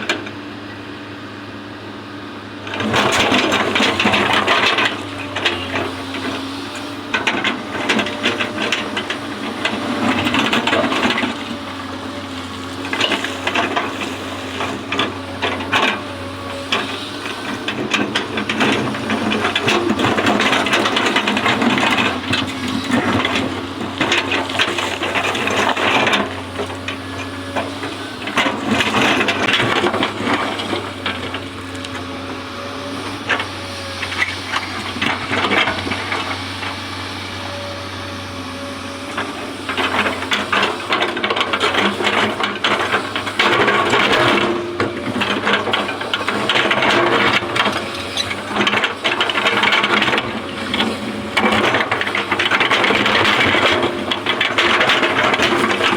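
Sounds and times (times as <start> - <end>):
excavator engine and hydraulics: 0.0 - 55.9
clattering and scraping: 12.8 - 32.1, 39.1 - 55.9.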